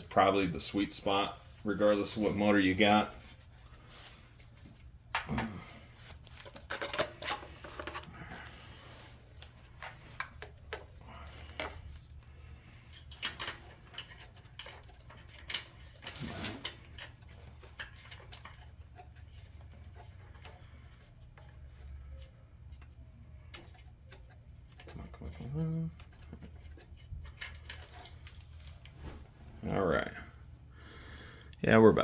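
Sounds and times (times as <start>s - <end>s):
clicks and knocks of hands working: 5.1s - 12.1s.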